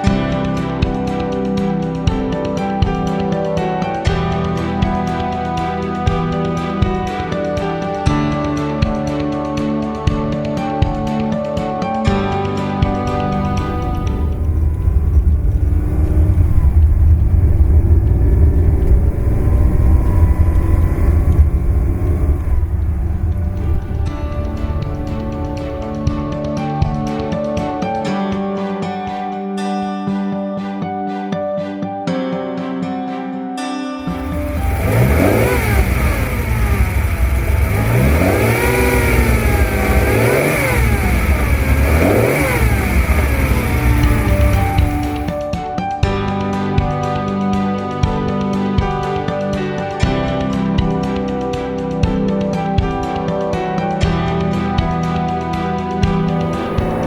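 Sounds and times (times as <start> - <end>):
car engine running: 12.8 - 26.6, 34.1 - 45.4, 55.4 - 57.0.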